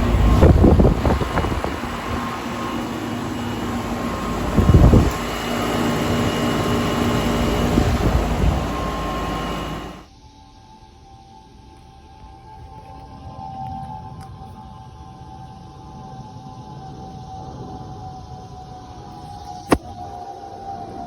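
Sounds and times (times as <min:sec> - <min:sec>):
condenser fan whoosh: 0:00.0 - 0:10.0
compressor hum: 0:00.0 - 0:10.1.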